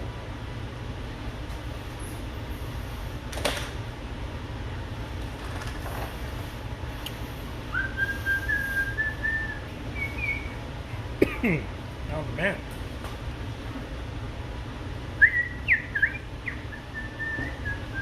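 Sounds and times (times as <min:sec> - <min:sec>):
steady low hum: 0:00.0 - 0:18.0
person whistling: 0:07.7 - 0:10.6, 0:15.2 - 0:18.0.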